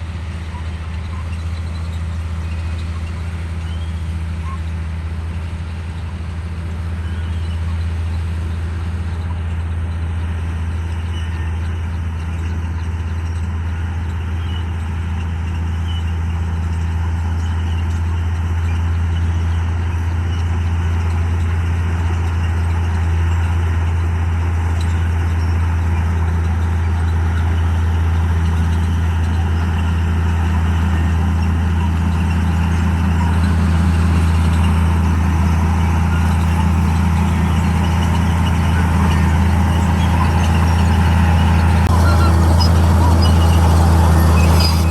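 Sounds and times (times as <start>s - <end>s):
bulldozer diesel engine droning: 0.0s - 44.9s.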